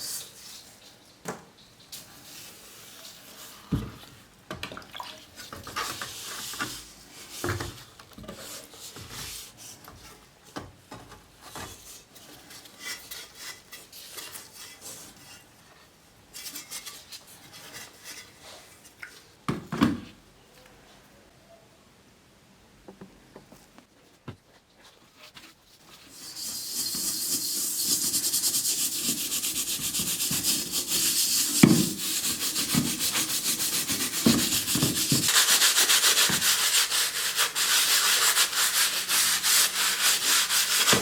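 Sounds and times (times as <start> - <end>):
rubbing and scraping metal: 25.1 - 41.0.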